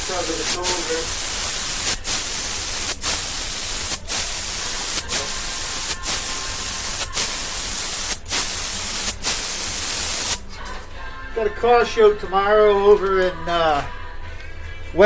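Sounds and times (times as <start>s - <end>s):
paint spray gun hissing: 0.0s - 10.4s.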